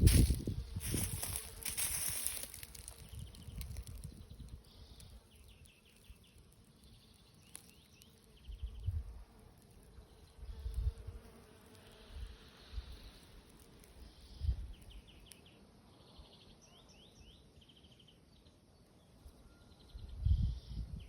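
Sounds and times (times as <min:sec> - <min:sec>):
low rumbling microphone noise: 0:00.0 - 0:04.6
songbirds trilling: 0:00.0 - 0:11.0.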